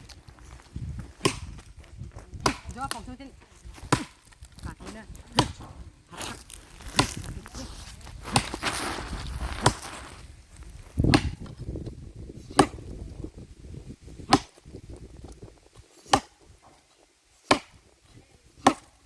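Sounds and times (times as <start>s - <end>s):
hand tool chopping strikes: 1.0s - 1.7s, 2.4s - 3.2s, 3.8s - 5.7s, 6.9s - 7.3s, 8.3s - 8.7s, 9.6s - 10.0s, 11.0s - 11.6s, 12.5s - 12.9s, 14.2s - 14.7s, 16.0s - 16.8s, 17.4s - 17.8s, 18.6s - 19.0s.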